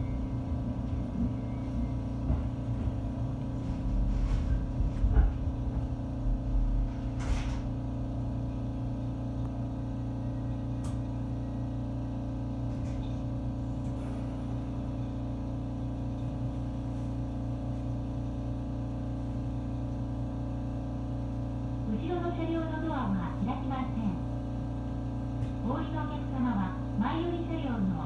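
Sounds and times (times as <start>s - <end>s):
electric train running: 0.0s - 7.6s
motors and wheels humming: 0.0s - 28.0s.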